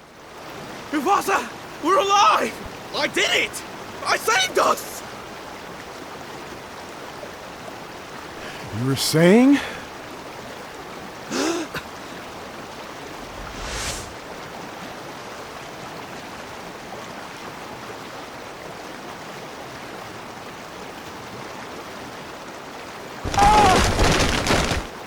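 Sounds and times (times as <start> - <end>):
rushing river water: 0.0 - 25.0.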